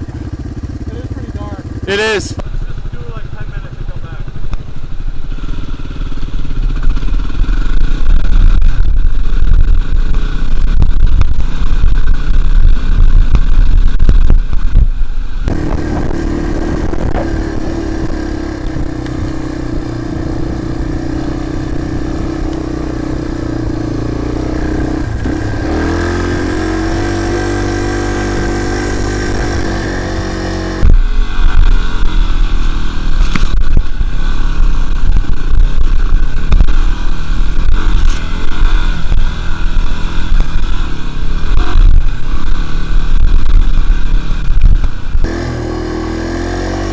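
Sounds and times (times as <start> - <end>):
dirt bike engine revving: 0.0 - 2.4, 15.5 - 30.9, 45.2 - 46.9
heavy low rumble: 0.0 - 5.3, 6.2 - 46.9.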